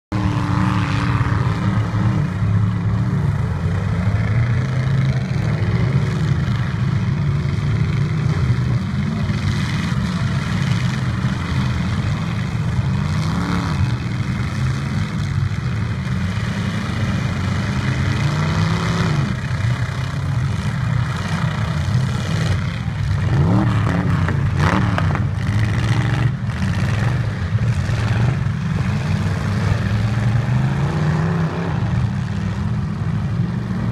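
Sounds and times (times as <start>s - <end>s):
truck engines revving hard: 0.1s - 33.9s.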